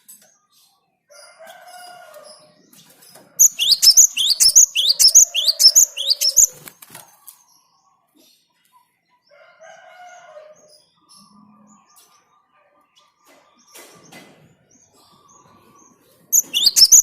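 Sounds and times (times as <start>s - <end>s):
bird singing sharp high notes: 3.4s - 6.6s, 16.4s - 17.0s.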